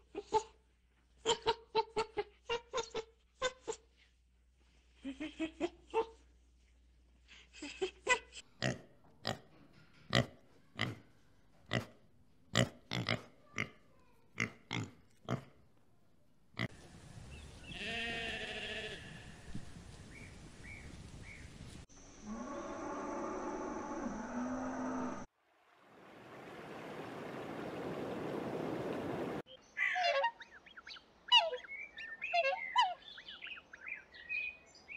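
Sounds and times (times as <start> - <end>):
pig grunting: 11.7 - 13.8.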